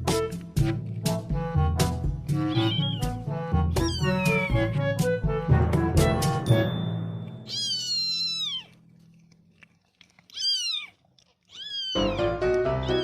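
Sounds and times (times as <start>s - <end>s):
background music: 0.0s - 7.7s, 12.0s - 13.0s
cat meowing: 2.4s - 4.8s, 7.4s - 8.9s, 10.3s - 13.0s.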